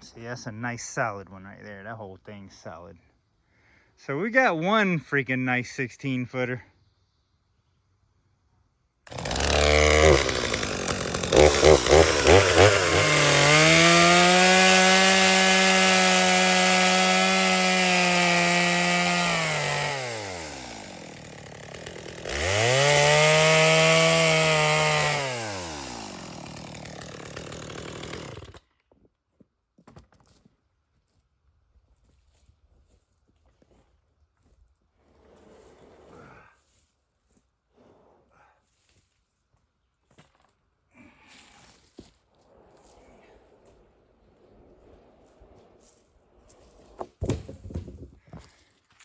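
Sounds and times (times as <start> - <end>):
chainsaw running and revving: 9.1 - 28.6.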